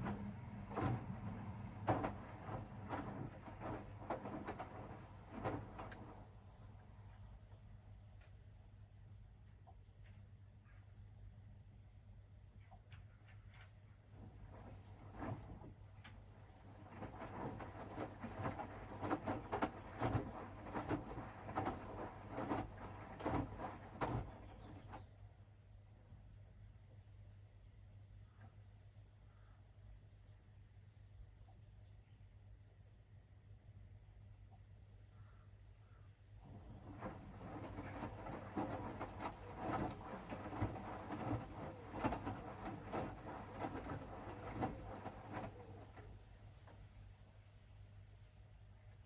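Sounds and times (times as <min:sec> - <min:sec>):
laundry thudding and water sloshing: 0:00.0 - 0:06.8, 0:14.2 - 0:25.1, 0:36.4 - 0:47.0
washing machine motor hum: 0:00.0 - 0:07.5, 0:14.1 - 0:25.2, 0:36.4 - 0:46.9.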